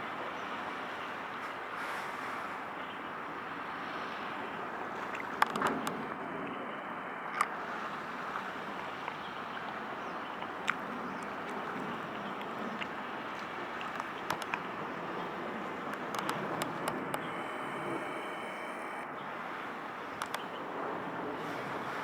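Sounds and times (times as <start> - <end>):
sharp clicks: 13.8 - 19.1, 20.0 - 20.6.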